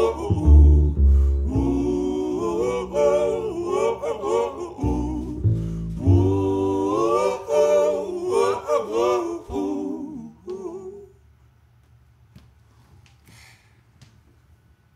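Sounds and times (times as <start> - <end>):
voices singing wordless harmony: 0.0 - 11.3.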